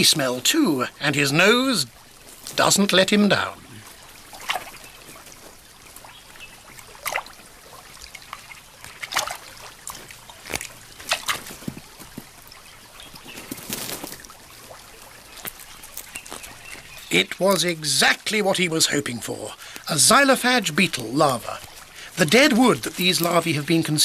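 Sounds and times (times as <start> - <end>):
water trickling and dripping: 0.0 - 24.0
short splashes: 1.9 - 17.8.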